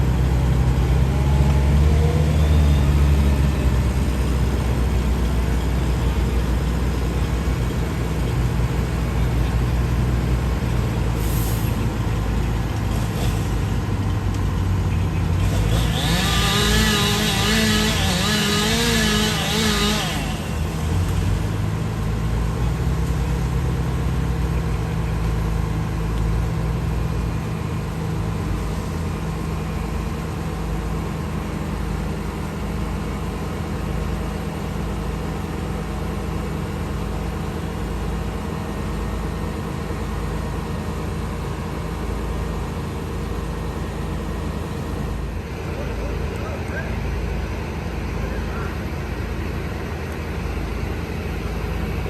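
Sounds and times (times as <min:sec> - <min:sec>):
large engine droning: 0:00.0 - 0:52.0
chainsaw cutting: 0:15.4 - 0:21.4.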